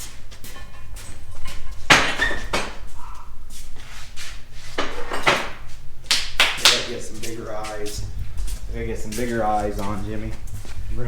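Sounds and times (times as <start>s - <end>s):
low steady hum: 0.0s - 11.0s
metal tools clanking: 4.7s - 5.6s.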